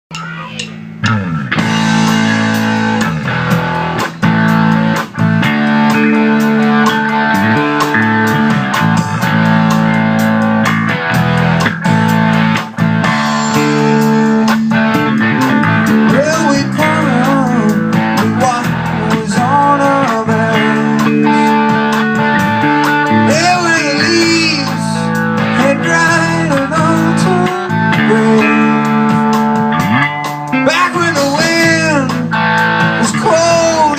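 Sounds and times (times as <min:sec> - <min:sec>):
blues-rock band playing: 0:00.1 - 0:33.9
lead guitar bending notes: 0:00.1 - 0:33.9.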